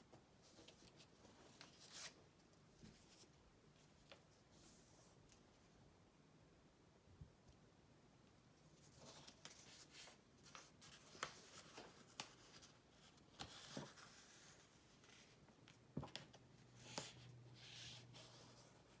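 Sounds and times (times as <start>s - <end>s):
paper rustling and folding: 0.4s - 5.2s, 8.8s - 19.0s.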